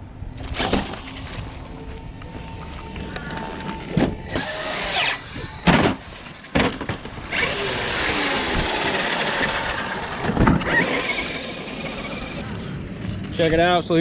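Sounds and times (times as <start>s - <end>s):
electric motors whining: 1.4s - 12.5s
toy trucks thudding on ramp: 4.0s - 12.4s.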